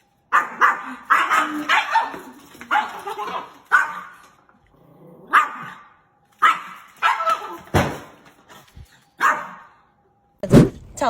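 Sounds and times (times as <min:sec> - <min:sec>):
dog barking: 0:00.3 - 0:04.1, 0:05.3 - 0:07.6, 0:09.2 - 0:09.8.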